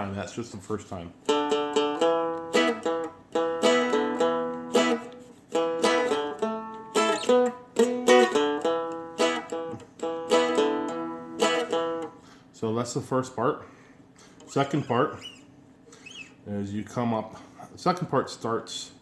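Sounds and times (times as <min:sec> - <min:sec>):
dulcimer strummed in blues rhythm: 0:01.2 - 0:12.2.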